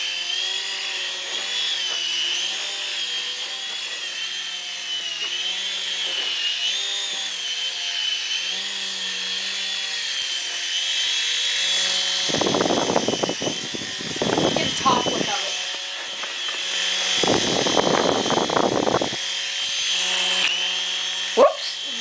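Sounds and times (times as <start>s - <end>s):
toy helicopter rotor whine: 0.0s - 22.0s.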